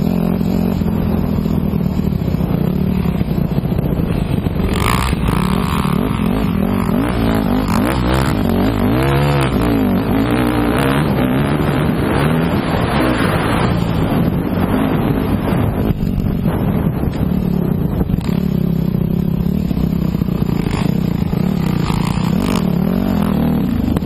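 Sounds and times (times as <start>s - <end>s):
motocross bike engine revving: 2.4s - 15.6s, 17.6s - 24.0s.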